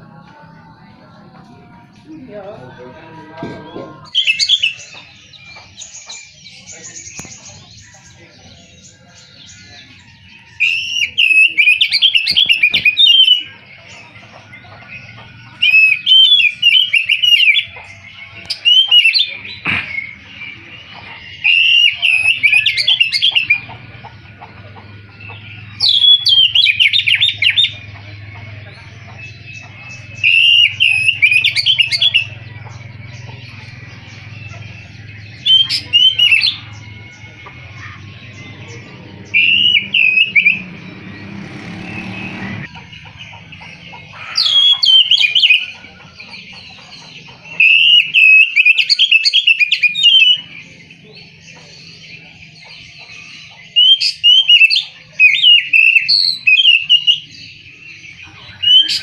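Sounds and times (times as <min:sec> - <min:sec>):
bird singing whistled phrases: 0:04.1 - 0:05.0, 0:10.6 - 0:13.6, 0:15.6 - 0:17.8, 0:18.4 - 0:20.3, 0:21.4 - 0:23.6, 0:25.8 - 0:27.8, 0:30.1 - 0:32.4, 0:35.4 - 0:37.2, 0:39.2 - 0:40.7, 0:47.6 - 0:50.5, 0:53.7 - 0:57.6.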